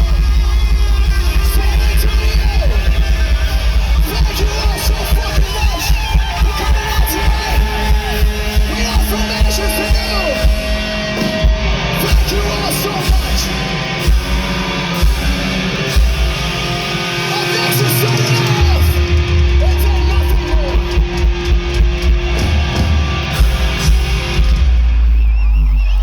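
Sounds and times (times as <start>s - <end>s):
bass guitar: 0.0s - 26.0s
distorted electric guitars: 0.0s - 26.0s
drums with steady beat: 0.0s - 26.0s.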